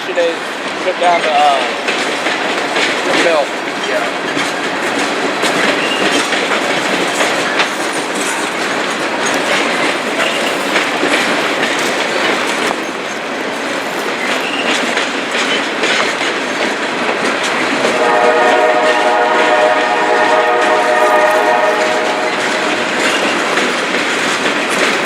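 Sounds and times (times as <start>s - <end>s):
train cars rumbling past: 0.0s - 25.0s
wheels clicking over rail joints: 0.0s - 25.0s
multi-note train horn: 17.8s - 23.2s.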